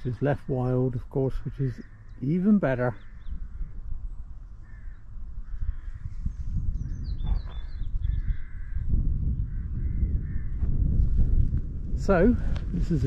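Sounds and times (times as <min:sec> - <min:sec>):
wind buffeting microphone: 0:00.0 - 0:13.0
small bird chirping: 0:01.7 - 0:08.6
crows cawing: 0:01.8 - 0:03.9, 0:04.5 - 0:06.3, 0:07.5 - 0:10.6.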